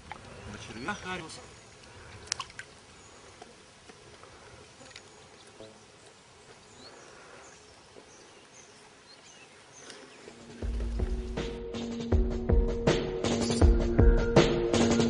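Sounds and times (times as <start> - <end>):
small ticks: 1.7 - 8.1, 9.8 - 10.4
short high bird chirps: 13.3 - 13.7.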